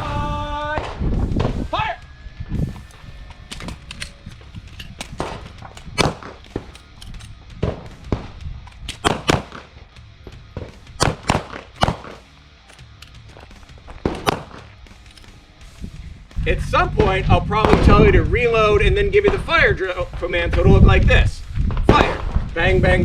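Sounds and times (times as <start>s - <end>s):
background music: 0.9s - 23.0s
pistol shots: 3.5s - 8.2s, 8.8s - 9.7s, 10.6s - 13.2s, 14.0s - 15.3s.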